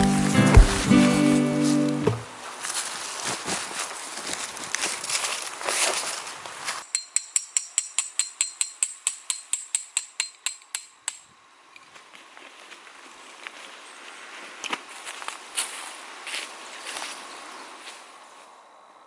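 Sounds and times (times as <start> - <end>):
hammer tapping on metal: 2.0 - 2.3.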